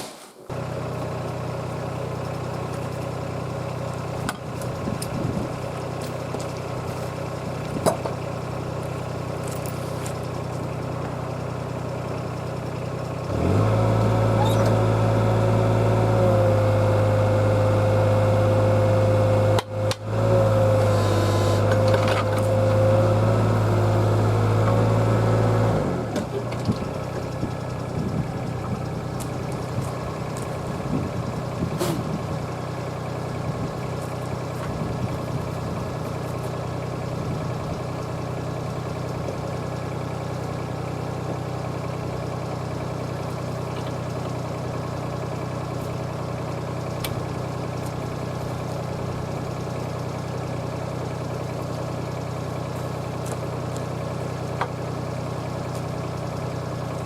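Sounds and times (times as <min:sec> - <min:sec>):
excavator engine running: 0:00.5 - 0:57.0
whining tone: 0:14.0 - 0:15.0.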